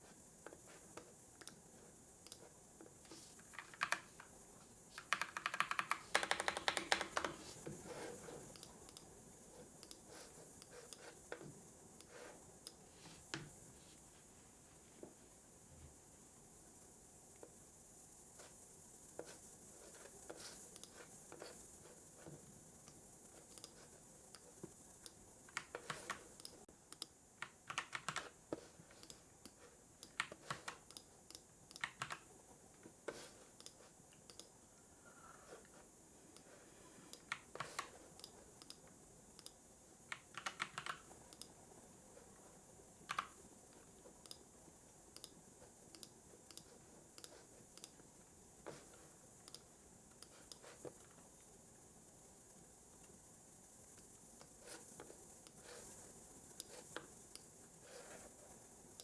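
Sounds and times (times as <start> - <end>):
faint background hiss: 0.0 - 59.0
keyboard typing clicks: 3.6 - 4.3, 5.0 - 7.6, 25.0 - 28.3, 29.0 - 32.3, 33.6 - 34.6, 39.4 - 41.6, 43.0 - 43.4.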